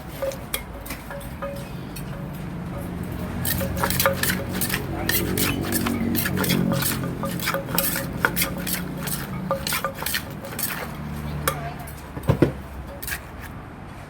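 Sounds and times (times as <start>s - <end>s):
spoon scraping in a mortar: 0.0s - 12.0s, 12.8s - 13.5s.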